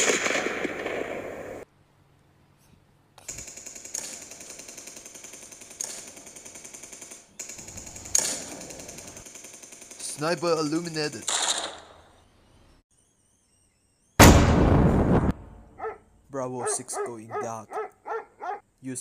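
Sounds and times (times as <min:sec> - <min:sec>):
automatic gunfire: 0:03.3 - 0:12.0.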